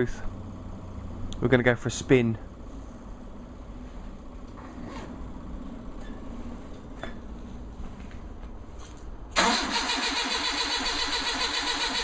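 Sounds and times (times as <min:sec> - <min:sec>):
starter motor cranking engine: 0:09.4 - 0:12.0.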